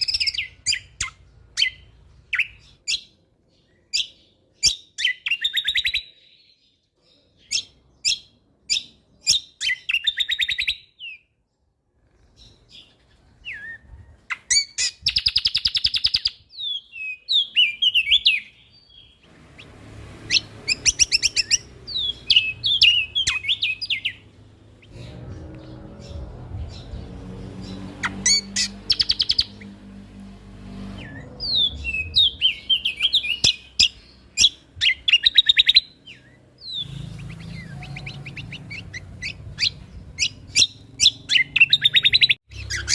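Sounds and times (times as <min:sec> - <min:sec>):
bird singing clicking trills: 0:14.3 - 0:19.7, 0:27.5 - 0:30.3.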